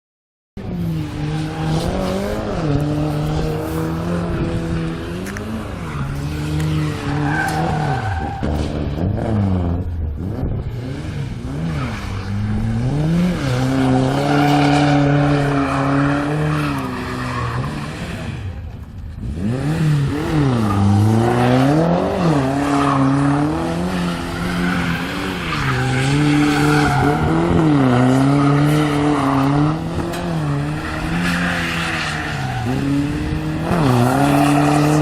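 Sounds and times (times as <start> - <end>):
car engine revving hard: 19.2 - 35.0.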